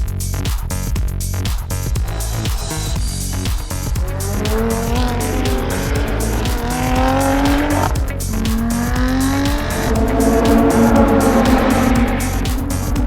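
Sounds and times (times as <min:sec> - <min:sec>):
car engine hard acceleration: 0:02.0 - 0:13.0.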